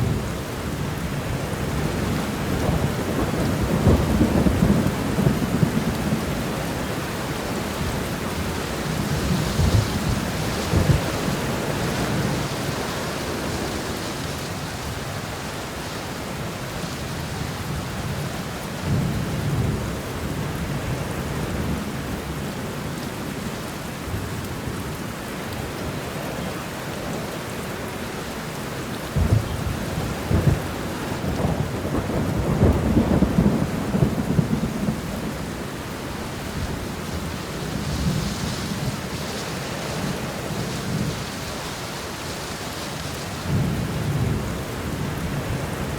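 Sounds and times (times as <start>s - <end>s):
thunder rumbling: 0.0s - 20.0s, 29.1s - 42.3s
rain shower: 0.0s - 45.9s.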